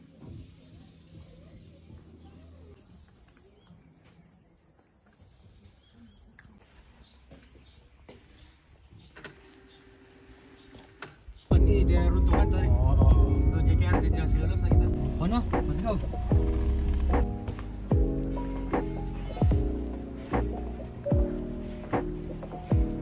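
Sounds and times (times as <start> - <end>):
bird chirping: 0.2 - 11.6.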